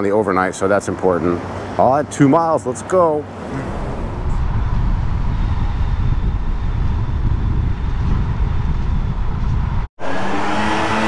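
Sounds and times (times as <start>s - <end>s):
road noise rumble: 0.0s - 10.5s
wind buffeting microphone: 3.2s - 9.9s.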